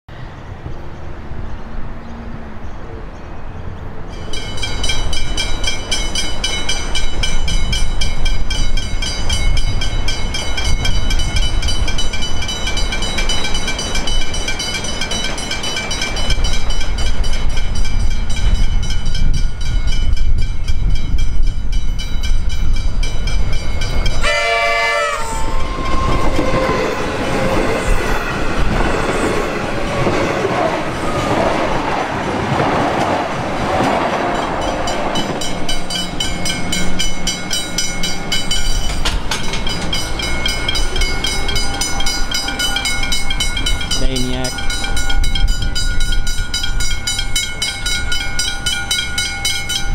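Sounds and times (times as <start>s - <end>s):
level crossing bells ringing: 4.2s - 20.3s, 34.4s - 49.9s
train wheels clattering: 4.2s - 49.9s
train horn blast: 24.2s - 27.8s.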